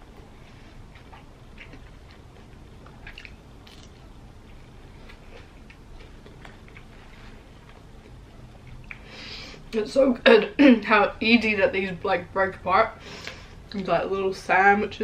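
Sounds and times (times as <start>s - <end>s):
low steady hum: 0.0s - 15.0s
wet mouth clicks and smacks: 3.0s - 3.9s.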